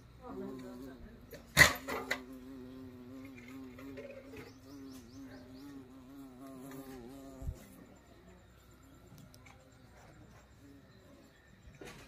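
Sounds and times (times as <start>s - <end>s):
flying insect buzzing: 0.1s - 9.7s.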